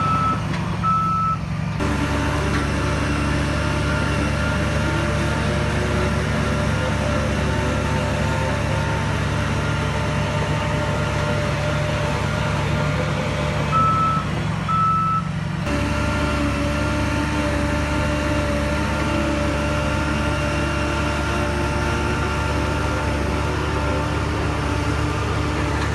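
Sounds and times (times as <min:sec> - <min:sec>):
reversing alarm beeps: 0:00.0 - 0:01.4, 0:13.7 - 0:15.3
diesel earthmoving machine running: 0:00.0 - 0:25.9.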